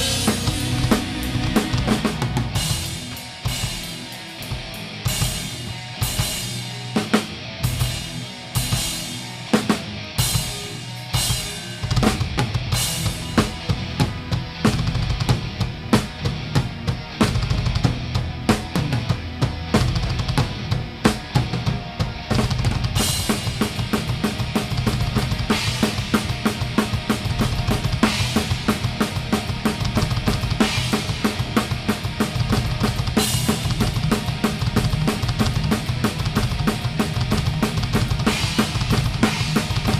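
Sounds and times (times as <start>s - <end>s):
fast bass drum and snare beat: 0.0s - 6.5s, 22.3s - 39.9s
live metal band playing: 0.0s - 39.9s.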